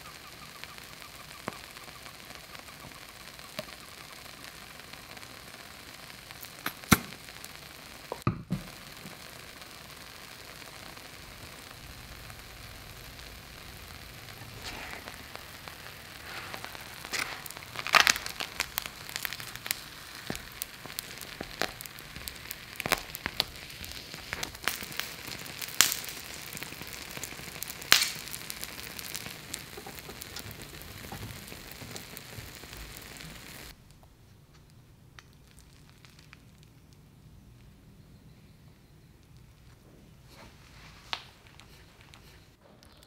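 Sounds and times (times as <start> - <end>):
food sizzling in oiled pan: 0.0 - 33.8
crisp crackles and snaps: 0.0 - 37.8, 39.2 - 43.0.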